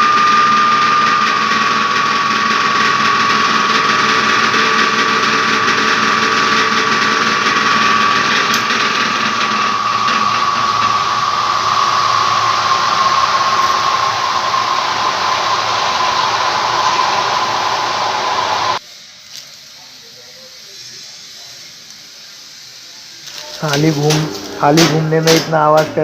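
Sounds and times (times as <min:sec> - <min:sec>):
spin dryer whine: 0:00.0 - 0:18.8, 0:23.3 - 0:26.0.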